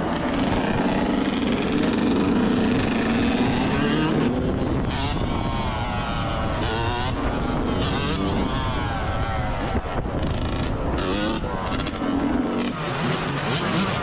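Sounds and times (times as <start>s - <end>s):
two-stroke dirt bike engines: 0.0s - 14.0s.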